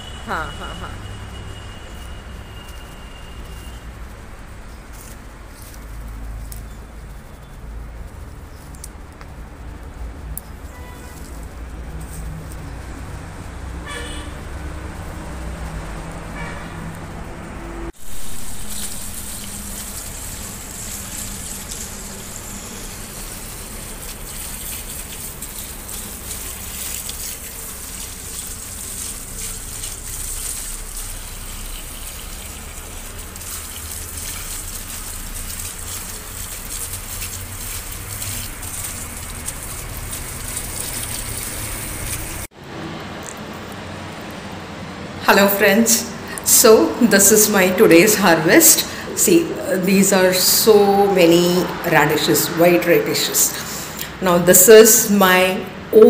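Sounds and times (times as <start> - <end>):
water gushing: 18.0 - 42.5.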